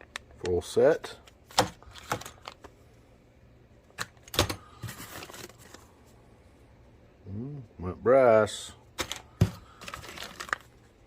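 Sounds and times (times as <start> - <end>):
packaging rustling: 1.5 - 2.7, 4.2 - 5.9, 9.0 - 11.0.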